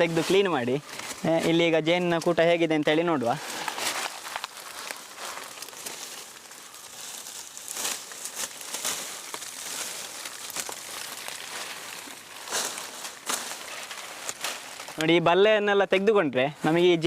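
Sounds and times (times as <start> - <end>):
dry brush rustling and crackling: 0.0 - 17.0
sharp snaps of undergrowth: 3.4 - 15.2.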